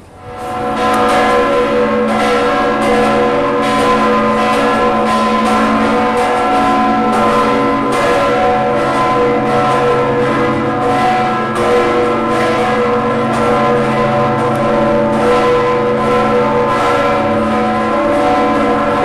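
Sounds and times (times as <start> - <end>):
church bells pealing: 0.0 - 19.0.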